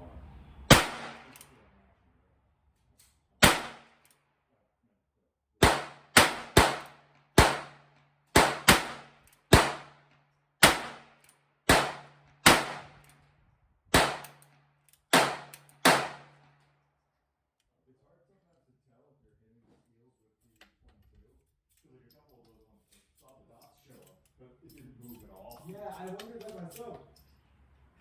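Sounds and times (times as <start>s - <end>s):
handgun shots: 0.7s - 1.5s, 3.4s - 4.0s, 5.6s - 10.0s, 10.6s - 13.1s, 13.9s - 14.5s, 15.1s - 16.4s.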